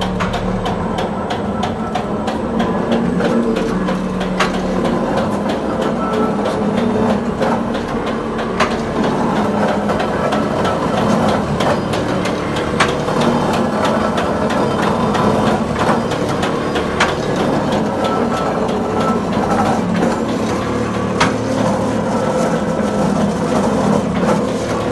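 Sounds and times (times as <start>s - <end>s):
machinery humming: 0.0s - 24.9s
sharp mechanical clicks and knocks: 0.0s - 24.9s.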